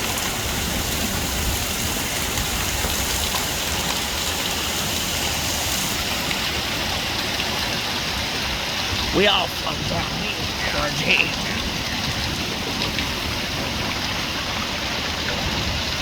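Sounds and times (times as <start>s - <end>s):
heavy rain drumming on surfaces: 0.0s - 16.0s
runoff water rushing: 0.0s - 16.0s.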